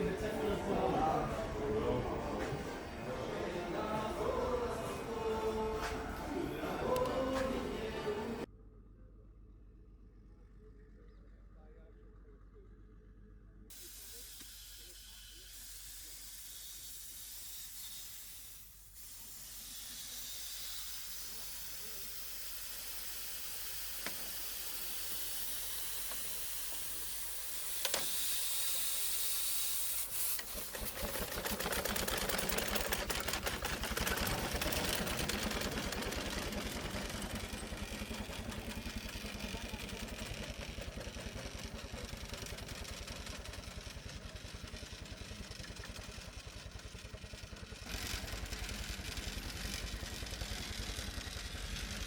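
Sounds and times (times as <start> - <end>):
engine running: 30.0 - 52.0.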